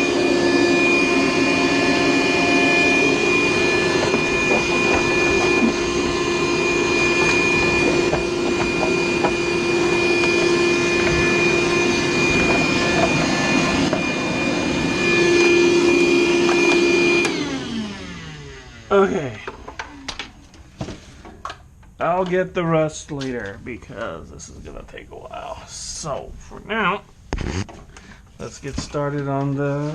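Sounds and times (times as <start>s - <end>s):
vacuum cleaner running: 0.0s - 21.4s.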